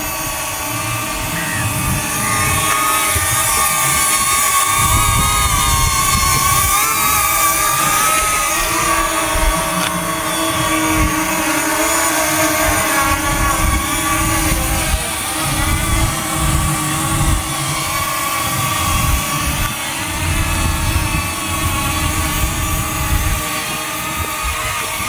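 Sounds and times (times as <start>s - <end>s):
drone propellers whining: 0.0s - 25.0s
wind buffeting microphone: 0.0s - 25.0s.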